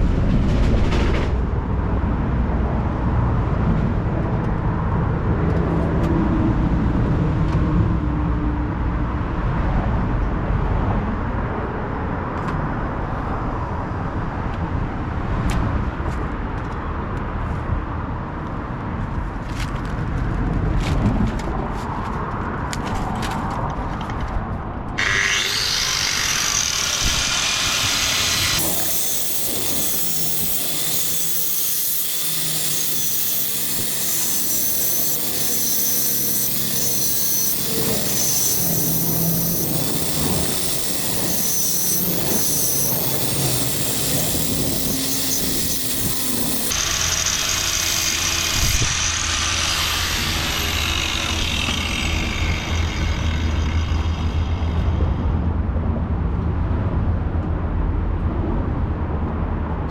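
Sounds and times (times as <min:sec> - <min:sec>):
power tools on sheet metal: 0:25.0 - 0:55.4.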